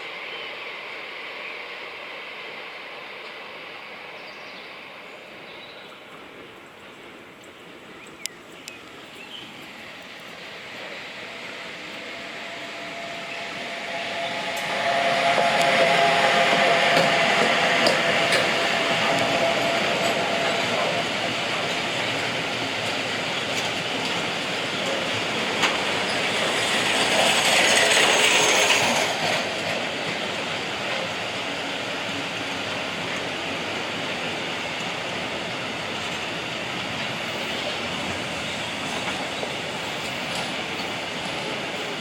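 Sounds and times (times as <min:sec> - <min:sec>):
train wheel-on-rail noise: 0:00.0 - 0:42.0
high wheel squeal: 0:12.1 - 0:21.2, 0:25.6 - 0:29.6.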